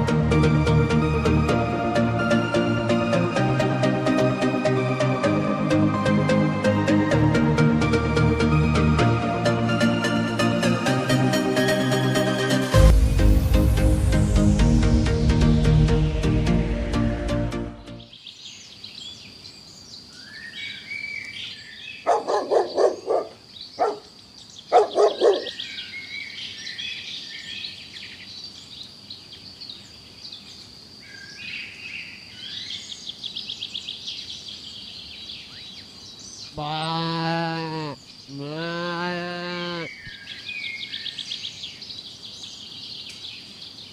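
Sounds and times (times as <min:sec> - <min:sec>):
birds chirping and twittering: 0:17.8 - 0:38.6, 0:39.5 - 0:43.9
low drawn-out animal call: 0:36.5 - 0:40.1.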